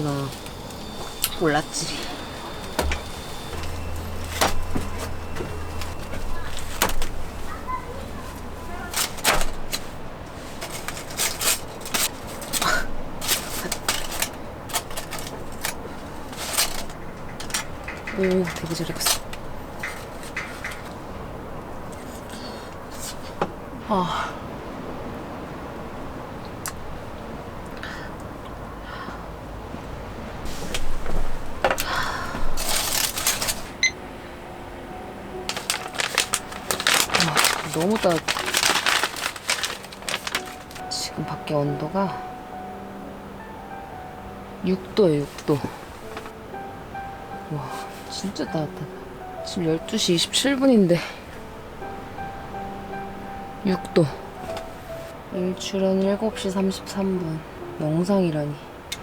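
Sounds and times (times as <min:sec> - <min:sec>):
short rustles: 0:00.0 - 0:21.1, 0:30.5 - 0:33.8, 0:35.5 - 0:41.0, 0:45.2 - 0:46.4, 0:47.6 - 0:48.4.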